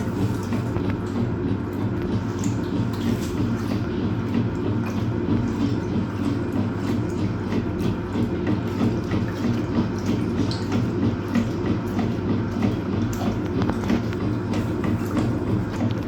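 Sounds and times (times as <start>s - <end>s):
washing machine motor hum: 0.0s - 16.0s
water sloshing in drum: 0.0s - 16.0s.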